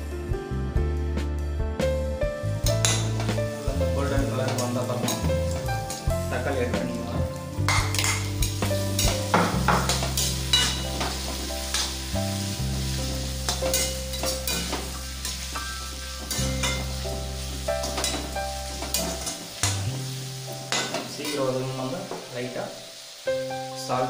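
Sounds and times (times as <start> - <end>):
background music: 0.0 - 24.0
vegetables sizzling in oil: 2.4 - 24.0
metal ladle scraping pan: 7.7 - 11.9.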